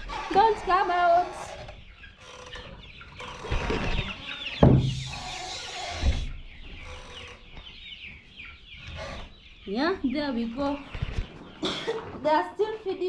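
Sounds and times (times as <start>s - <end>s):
chicks clucking and peeping: 0.0s - 13.0s
dull thumps: 4.6s - 5.2s.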